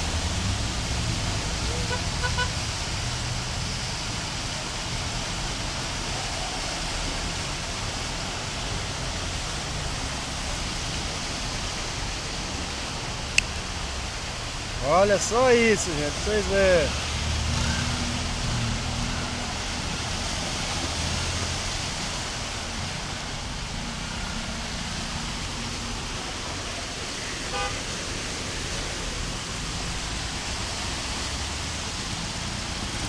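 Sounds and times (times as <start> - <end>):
car engines rumbling: 0.0 - 33.0
heavy rain hissing: 0.0 - 33.0
running floodwater: 0.0 - 33.0
car horn honk: 1.7 - 2.6, 27.5 - 27.8.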